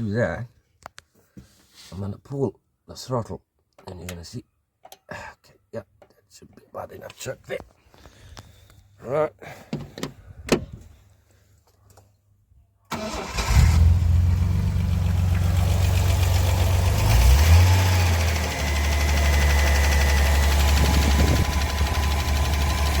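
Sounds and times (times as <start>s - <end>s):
car engine starting and idling: 12.9s - 23.0s.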